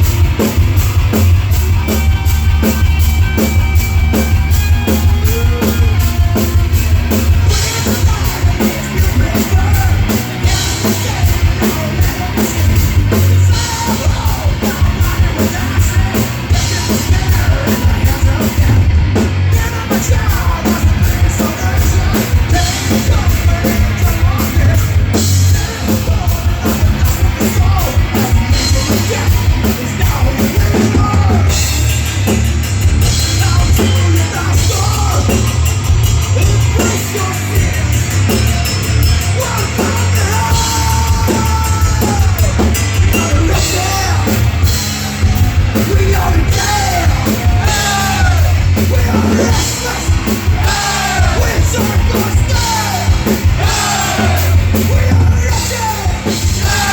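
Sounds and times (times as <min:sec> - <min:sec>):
bass guitar: 0:00.0 - 0:56.9
drum kit beats: 0:00.0 - 0:56.9
electric guitars: 0:00.0 - 0:56.9
rock band playing: 0:00.0 - 0:56.9
person singing: 0:07.1 - 0:31.7, 0:33.2 - 0:35.6, 0:39.2 - 0:56.9.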